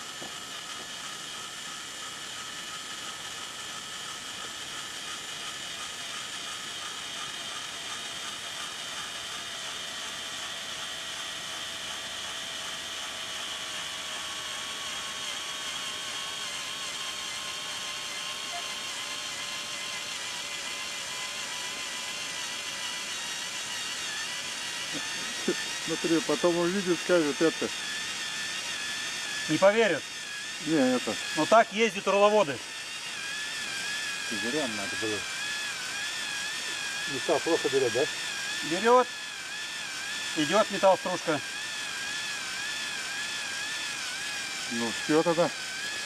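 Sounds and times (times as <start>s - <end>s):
electric drill boring into metal: 0.0s - 46.0s.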